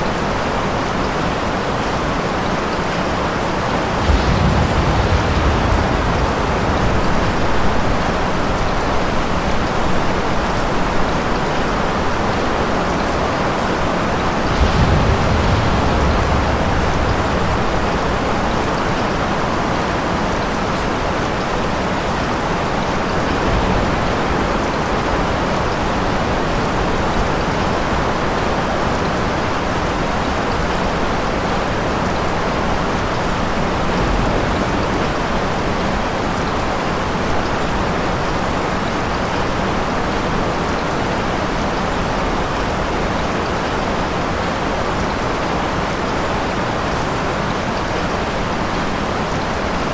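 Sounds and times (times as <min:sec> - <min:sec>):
steady rain: 0:00.0 - 0:49.9
low rumbles of thunder: 0:03.1 - 0:11.9, 0:13.6 - 0:20.8, 0:22.6 - 0:29.2, 0:32.1 - 0:38.4.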